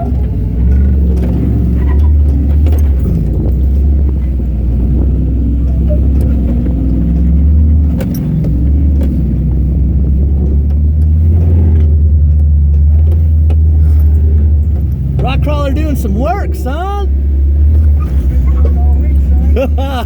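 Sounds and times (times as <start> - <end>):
vehicle engine drone: 0.0 - 20.0
knocks and rattles: 0.1 - 15.5.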